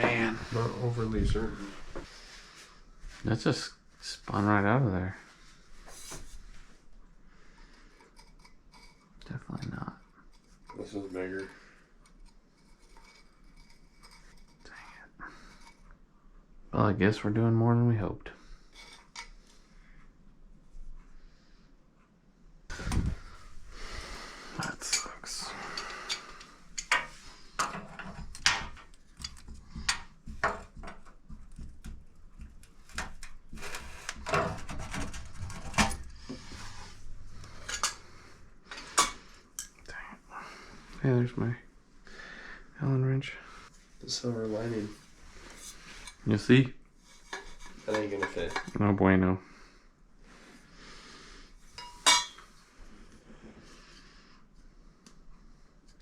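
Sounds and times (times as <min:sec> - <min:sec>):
tools scraping and rustling: 0:07.6 - 0:15.9, 0:18.6 - 0:19.7, 0:22.7 - 0:39.8, 0:43.7 - 0:48.8, 0:51.6 - 0:53.2
metal tools clinking: 0:37.4 - 0:39.8, 0:51.8 - 0:52.4.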